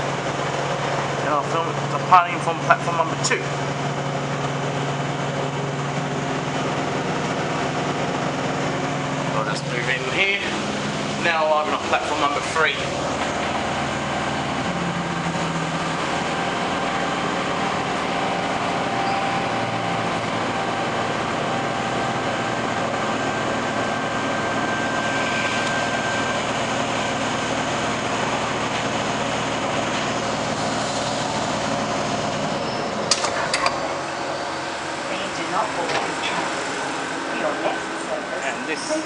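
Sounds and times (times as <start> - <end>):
electric train rumbling: 0.0 - 39.0
faint whining tones: 13.0 - 27.8.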